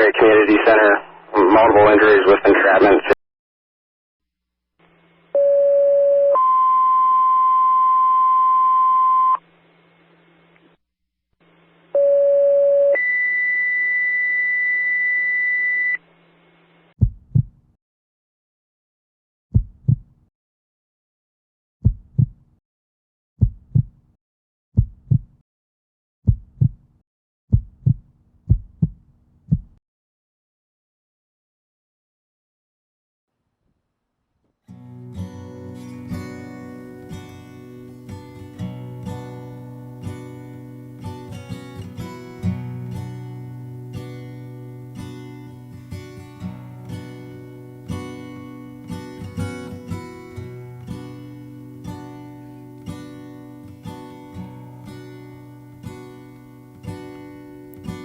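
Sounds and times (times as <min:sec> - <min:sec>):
heartbeat thumps: 0:17.0 - 0:17.7, 0:19.5 - 0:20.2, 0:21.8 - 0:22.5, 0:23.4 - 0:24.0, 0:24.8 - 0:25.4, 0:26.3 - 0:26.9, 0:27.5 - 0:29.8.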